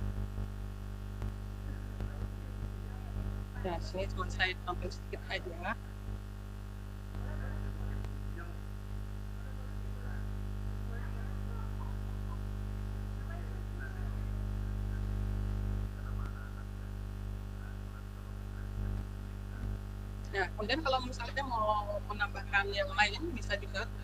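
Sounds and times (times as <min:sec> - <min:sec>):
electrical mains hum: 0:00.0 - 0:24.0
faint indistinct sounds: 0:00.0 - 0:24.0.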